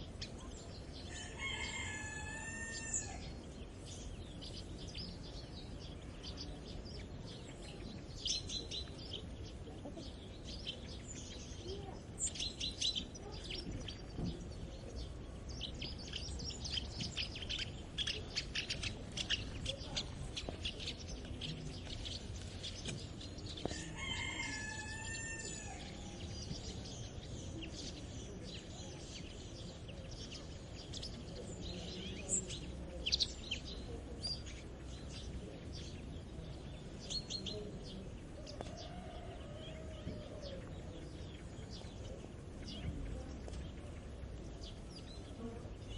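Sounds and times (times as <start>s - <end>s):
songbirds chirping: 0.0s - 45.9s
rooster crowing: 1.1s - 3.3s, 23.7s - 26.3s.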